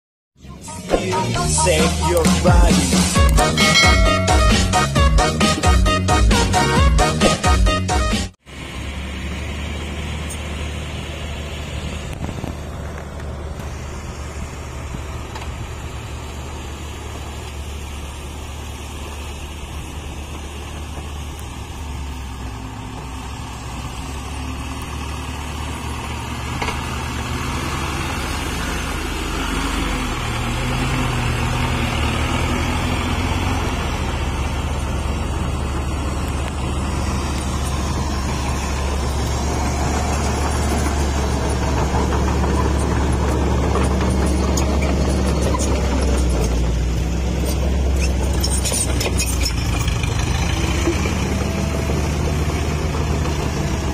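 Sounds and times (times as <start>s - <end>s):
truck engine running: 0.4s - 53.9s.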